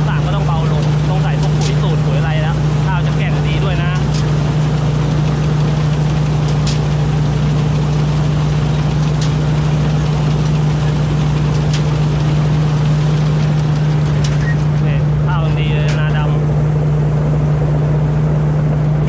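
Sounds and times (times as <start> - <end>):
combine harvester engine running: 0.0 - 19.0.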